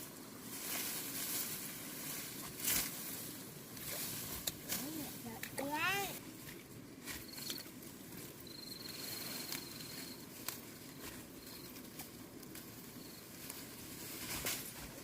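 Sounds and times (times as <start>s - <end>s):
rustling: 0.0s - 15.0s
insect trilling: 8.3s - 11.9s.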